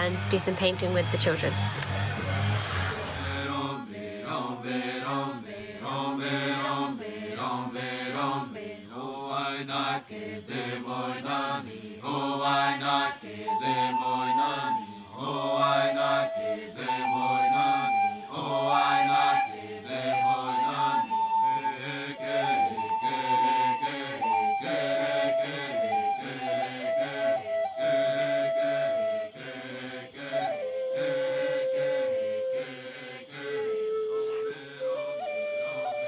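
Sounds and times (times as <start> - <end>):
voices chanting rhythmically: 0.0 - 35.0
flute holding notes: 13.3 - 36.0.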